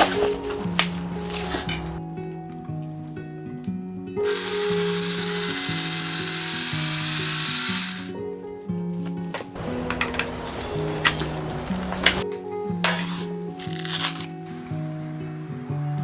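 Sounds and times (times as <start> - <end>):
background music: 0.0 - 16.0
small electric motor whirring: 4.2 - 8.2.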